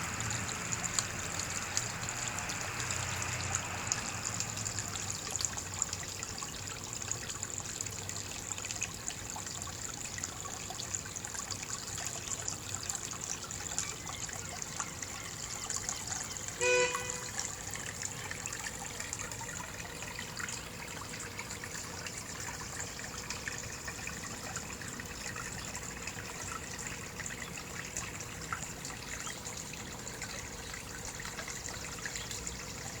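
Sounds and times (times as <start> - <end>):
water trickling: 0.0 - 33.0
short beep: 16.6 - 17.3.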